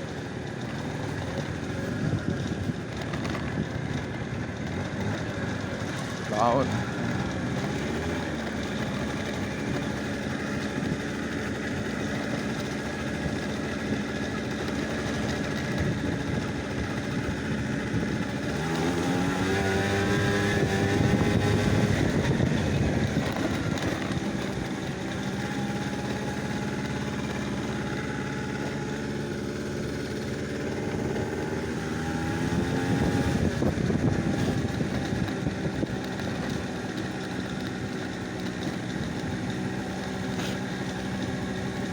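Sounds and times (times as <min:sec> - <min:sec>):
vehicle engine running: 0:00.0 - 0:41.9.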